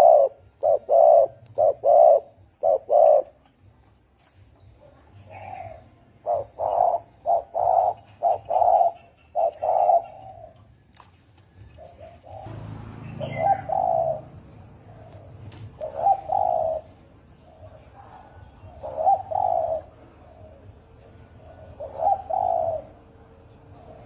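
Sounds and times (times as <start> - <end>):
dove cooing: 0.0 - 3.4, 4.8 - 10.8, 11.6 - 24.0
low rumble: 12.3 - 17.9.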